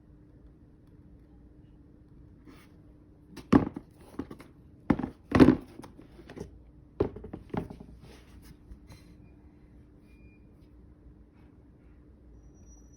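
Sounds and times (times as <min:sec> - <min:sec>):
shoe box knocks and rustles: 0:03.4 - 0:08.0.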